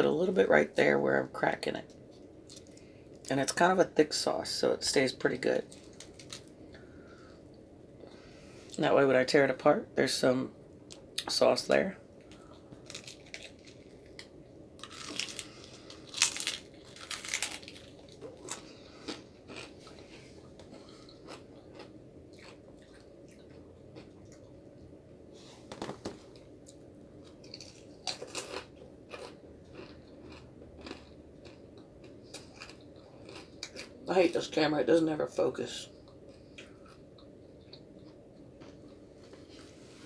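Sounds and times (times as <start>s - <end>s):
faint steady hum: 0.0s - 40.0s
crunching and chewing: 1.8s - 3.5s, 5.3s - 8.8s, 12.1s - 25.0s, 25.9s - 34.1s, 36.0s - 39.8s.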